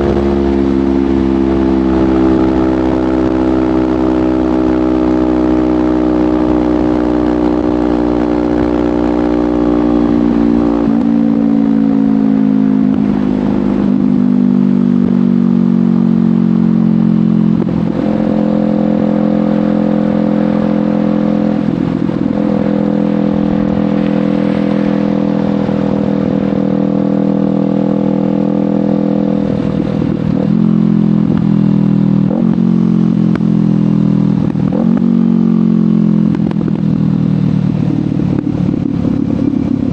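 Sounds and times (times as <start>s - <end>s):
motorcycle engine riding: 0.0s - 39.9s.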